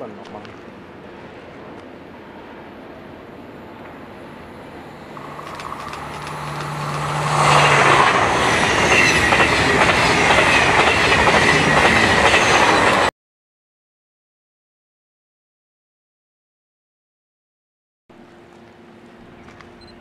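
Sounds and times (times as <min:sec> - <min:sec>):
train wheels rushing on rails: 0:00.0 - 0:13.1.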